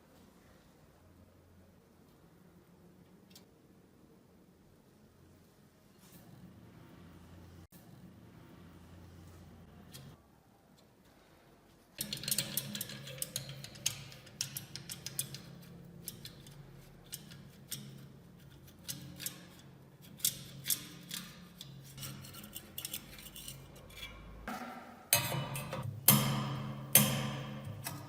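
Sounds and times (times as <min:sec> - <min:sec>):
hand tools clicking on metal: 0:12.0 - 0:24.2.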